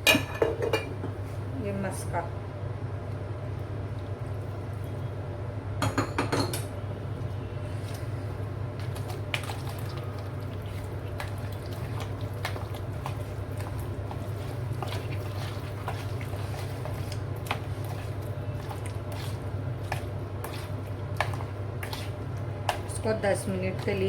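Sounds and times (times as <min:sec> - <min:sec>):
steady low hum: 0:00.0 - 0:24.0
chicken mixed in wet marinade: 0:07.1 - 0:24.0.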